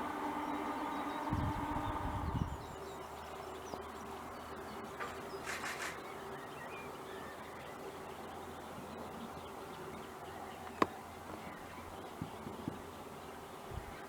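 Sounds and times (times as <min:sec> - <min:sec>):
low rumble: 0:00.0 - 0:02.8
faint high bird chirps: 0:00.0 - 0:14.0
scratchy bird call: 0:05.4 - 0:06.0.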